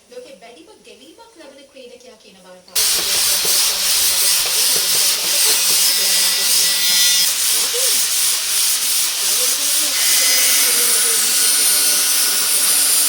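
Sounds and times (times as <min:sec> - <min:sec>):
workshop tool hissing: 0:02.8 - 0:13.0.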